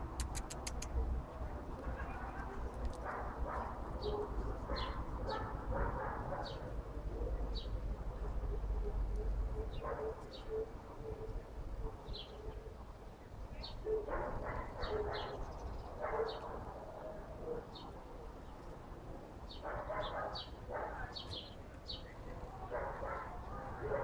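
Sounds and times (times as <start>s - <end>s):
birds chirping: 3.0s - 16.6s, 19.4s - 24.0s.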